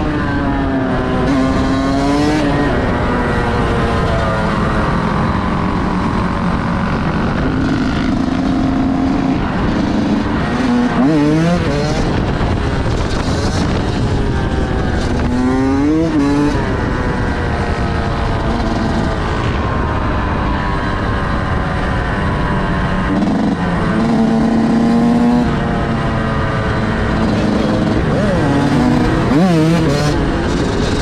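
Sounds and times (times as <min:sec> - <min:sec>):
vehicle engines running: 0:00.0 - 0:31.0
engine revs: 0:21.8 - 0:31.0.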